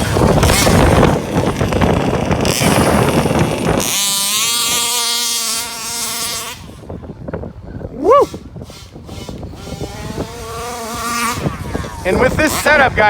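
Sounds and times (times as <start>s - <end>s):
two-stroke engine buzzing: 0.0s - 13.0s.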